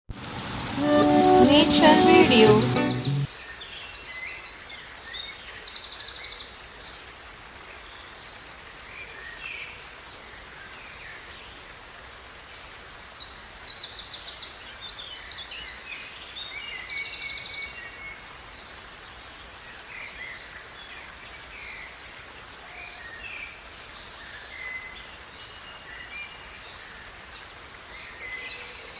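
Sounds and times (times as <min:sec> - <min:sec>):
running water hiss: 0:00.1 - 0:28.9.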